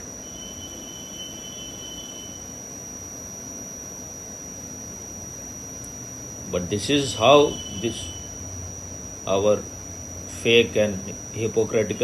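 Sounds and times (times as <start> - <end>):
faint second tone: 0.0 - 2.6, 7.1 - 8.4
high-pitched whine: 0.0 - 12.0.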